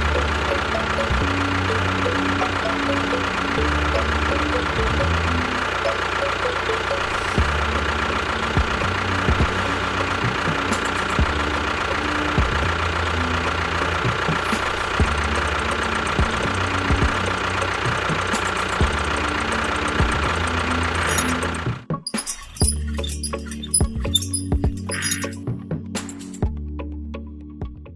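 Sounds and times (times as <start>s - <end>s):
engine knocking: 0.0s - 21.9s
small engine running: 0.0s - 25.4s
sharp clicks: 17.1s - 25.4s, 26.0s - 26.5s.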